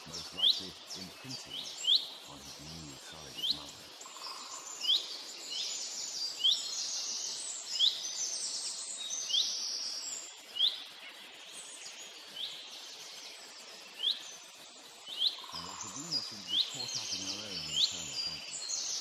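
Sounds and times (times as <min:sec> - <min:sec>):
bird rising chirp: 0:00.1 - 0:08.6.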